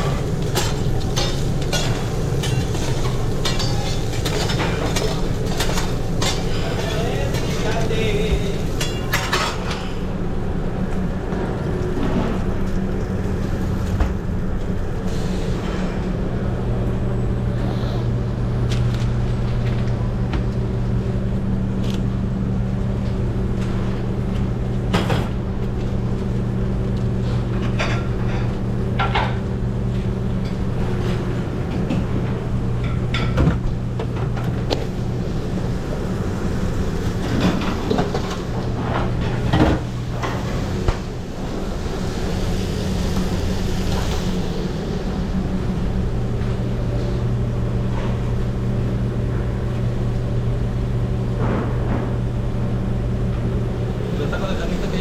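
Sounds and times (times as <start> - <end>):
pans and utensils clattering: 0.0 - 10.1
kitchen equipment hum: 0.0 - 55.0.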